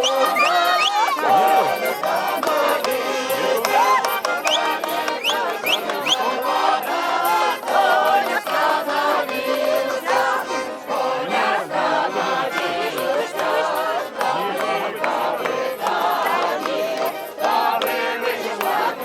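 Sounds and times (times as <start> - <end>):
high rising cries: 0.0 - 6.2
accordion dance music: 0.0 - 19.0
crowd singing and shouting: 0.0 - 19.0.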